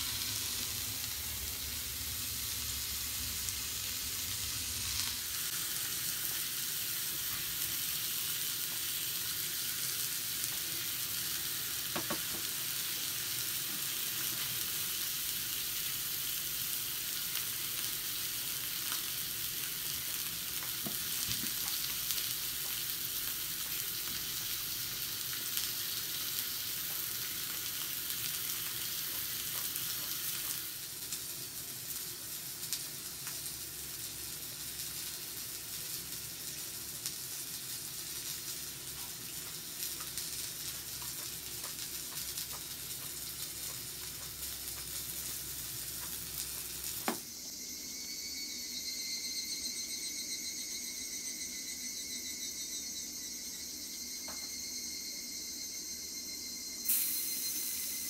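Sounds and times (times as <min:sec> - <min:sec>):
food sizzling in a skillet: 0:00.0 - 0:58.0.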